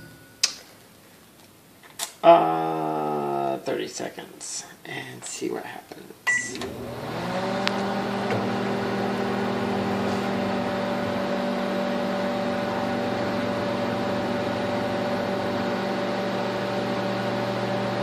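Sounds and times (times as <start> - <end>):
microwave oven humming: 6.3 - 18.0.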